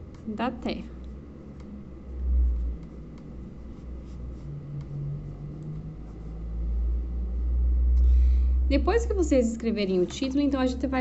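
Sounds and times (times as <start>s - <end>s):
low handling rumble: 0.6s - 11.0s
pen scratching on paper: 2.4s - 4.9s.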